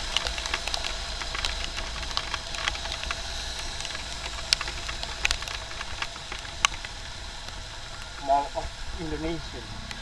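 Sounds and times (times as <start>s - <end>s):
raindrops ticking on microphone: 0.0s - 10.0s
rumble of wind: 0.0s - 10.0s
traffic rumble: 0.0s - 10.0s.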